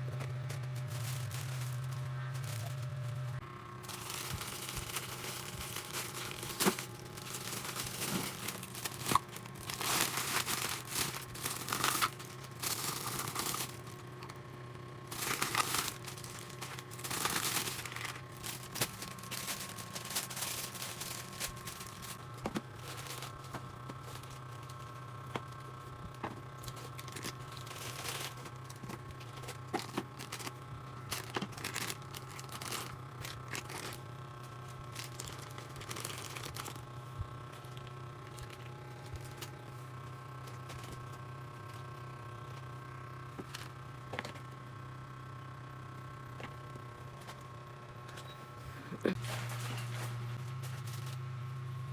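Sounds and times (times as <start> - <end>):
crinkly material rustling and tearing: 0.0 - 14.4, 15.0 - 42.6
steady low hum: 0.0 - 51.9.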